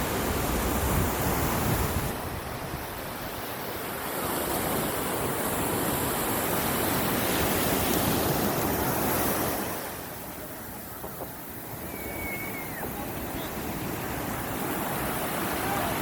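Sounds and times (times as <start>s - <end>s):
wind buffeting the microphone: 0.0s - 3.4s
surf waves breaking: 0.0s - 16.0s.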